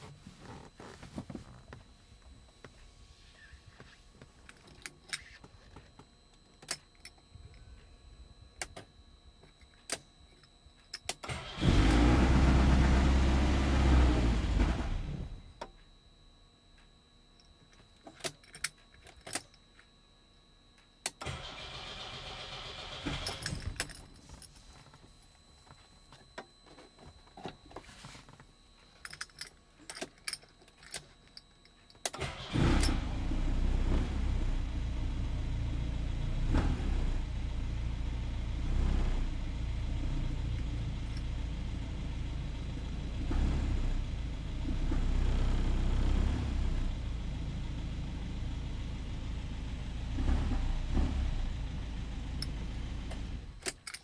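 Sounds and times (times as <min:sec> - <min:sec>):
car engine starting and revving: 0:11.3 - 0:15.4, 0:32.2 - 0:40.5, 0:42.0 - 0:47.7, 0:49.4 - 0:53.6.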